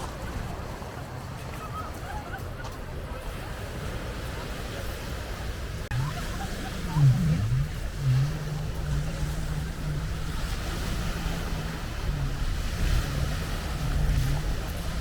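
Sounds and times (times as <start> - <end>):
sea waves washing on shore: 0.0 - 15.0
wind buffeting microphone: 5.3 - 15.0.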